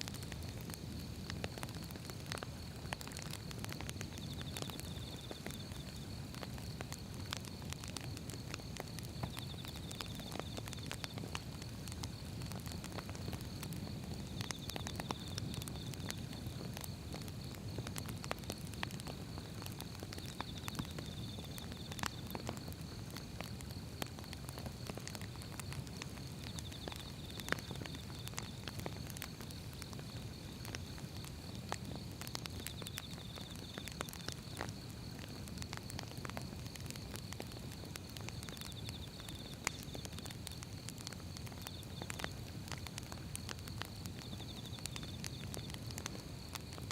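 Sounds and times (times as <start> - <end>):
firewood crackling and popping: 0.0 - 46.9
flames rumbling: 0.0 - 46.9.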